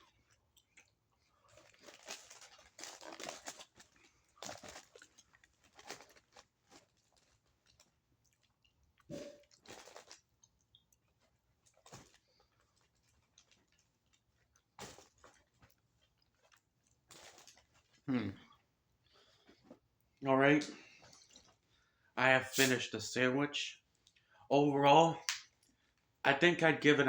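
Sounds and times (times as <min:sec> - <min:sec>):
chewing sandwich mouth clicks: 0:00.0 - 0:18.7
short vocal sound: 0:18.1 - 0:18.4, 0:22.2 - 0:22.9.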